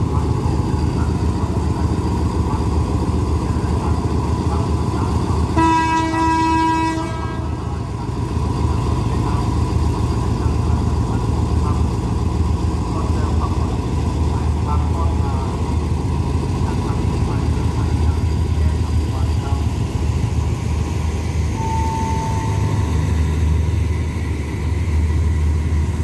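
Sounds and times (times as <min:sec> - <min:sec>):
diesel train engine idling: 0:00.0 - 0:26.0
train horn blast: 0:05.5 - 0:07.8, 0:21.5 - 0:23.4.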